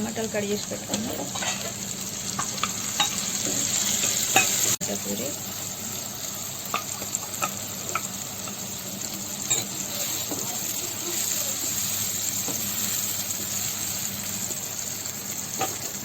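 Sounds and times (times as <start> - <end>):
tomatoes sizzling in oil: 0.0 - 16.0
spoon scraping a pan: 0.9 - 4.8, 9.4 - 13.7.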